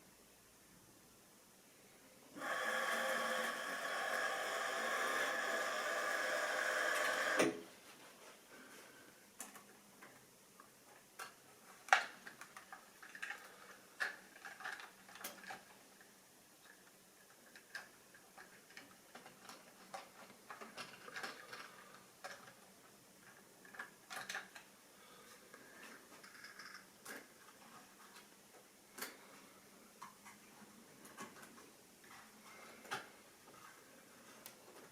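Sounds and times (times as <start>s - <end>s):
model train whirring: 2.4s - 7.4s.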